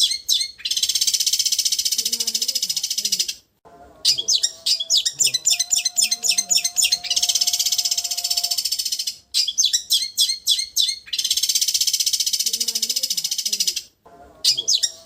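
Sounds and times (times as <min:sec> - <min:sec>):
bird chattering song: 0:00.0 - 0:03.4, 0:04.1 - 0:13.9, 0:14.5 - 0:15.0
buzzing bird trill: 0:04.1 - 0:09.2.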